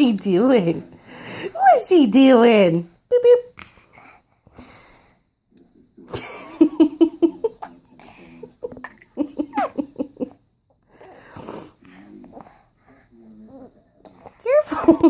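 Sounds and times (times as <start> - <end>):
rhythmic giggling: 6.1 - 10.4
breathy gasps: 10.9 - 13.1.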